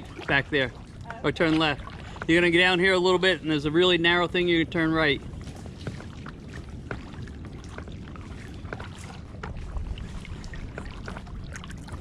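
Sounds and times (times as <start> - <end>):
paddle splashing water: 0.0 - 12.0
wind on microphone: 0.0 - 12.0.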